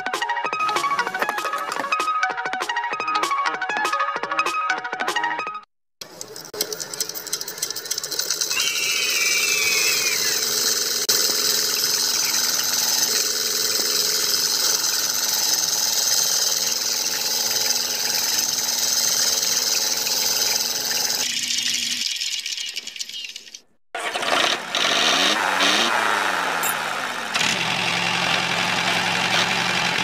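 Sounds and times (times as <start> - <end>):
small electric motor buzzing: 6.5 - 21.4
wavering squeal: 8.4 - 23.4.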